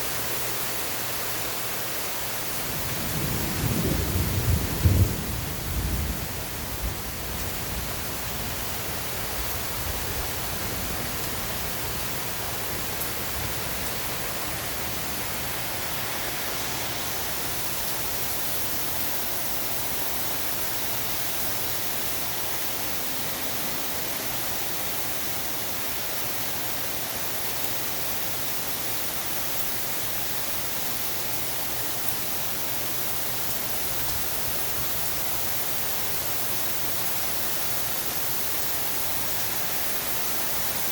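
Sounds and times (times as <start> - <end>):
heavy rain falling: 0.0 - 40.9
low rumble of thunder: 2.6 - 15.9.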